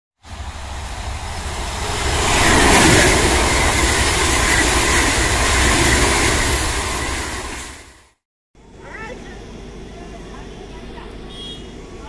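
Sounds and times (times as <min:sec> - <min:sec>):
train wheels rushing on rail: 0:00.2 - 0:08.2.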